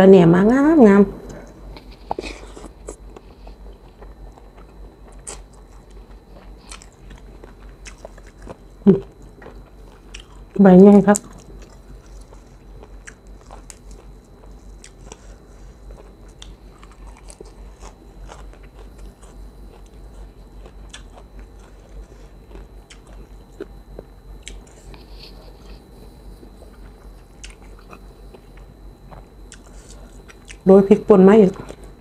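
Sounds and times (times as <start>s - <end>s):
chewing with small crunches: 1.2s - 30.7s, 31.5s - 32.0s.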